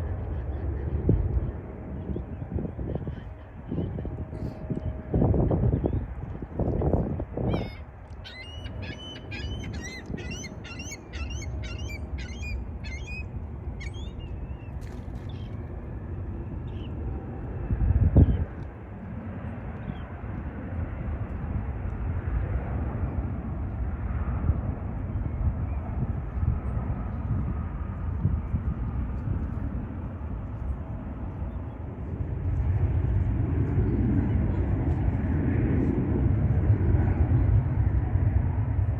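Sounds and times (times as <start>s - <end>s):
steady low rumble: 0.0s - 38.9s
bird chirping: 7.6s - 14.6s.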